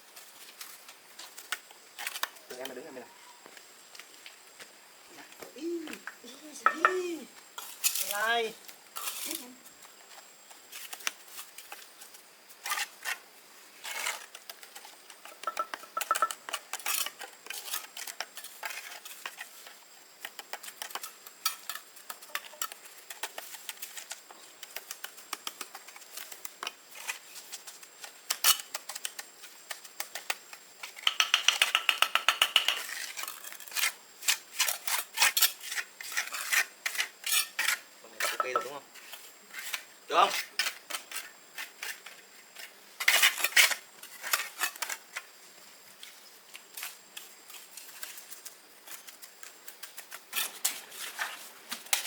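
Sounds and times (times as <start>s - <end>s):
hard objects clinking: 15.3s - 16.4s.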